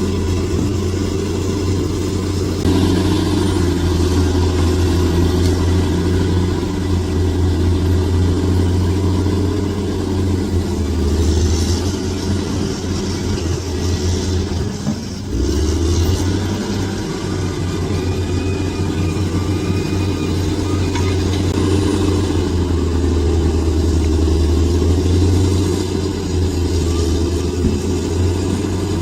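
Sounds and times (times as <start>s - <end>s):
bulldozer diesel engine droning: 0.0s - 29.0s.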